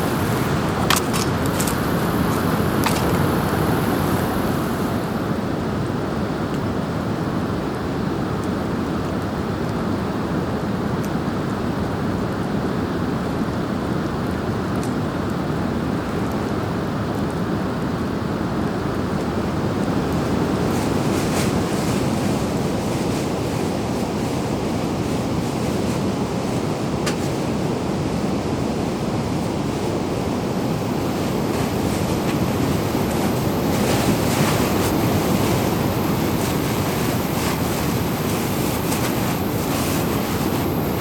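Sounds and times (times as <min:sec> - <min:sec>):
flowing water rushing: 0:00.0 - 0:05.4.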